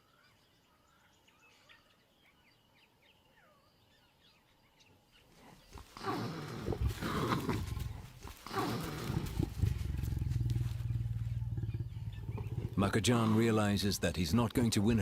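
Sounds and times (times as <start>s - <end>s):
faint bird chirps: 0.0s - 6.8s, 9.7s - 12.8s
leopard growling: 5.4s - 15.0s.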